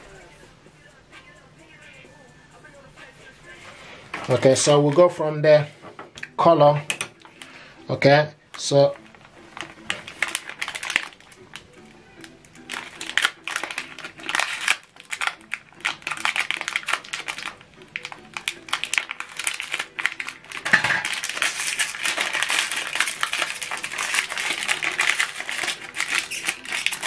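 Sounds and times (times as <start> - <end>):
packaging clicks and rustles: 8.6 - 27.0
packaging crinkling: 8.9 - 27.0.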